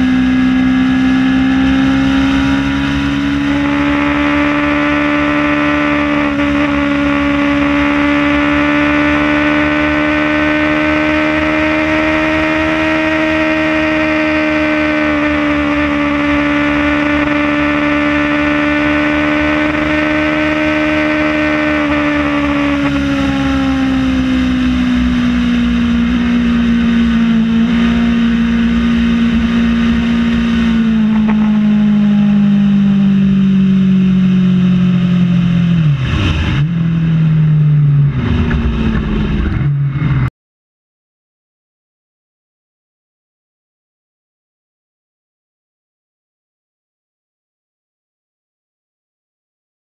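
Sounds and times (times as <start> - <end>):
motorcycle engine running: 0.0 - 40.3.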